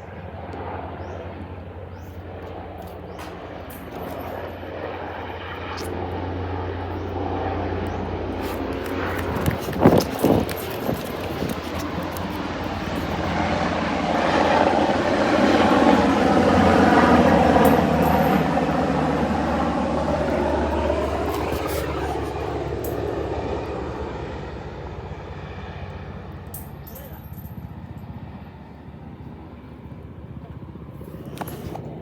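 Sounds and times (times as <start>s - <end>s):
helicopter flying past: 0.0s - 32.0s.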